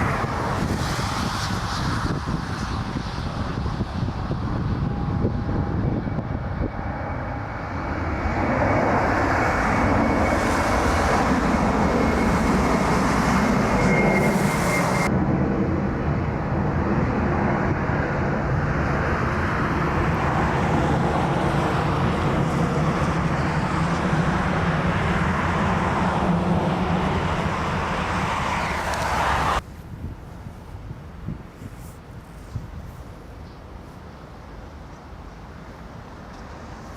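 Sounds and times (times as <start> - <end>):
high-pitched whine: 0.0 - 15.7
jet engines running: 0.0 - 36.9.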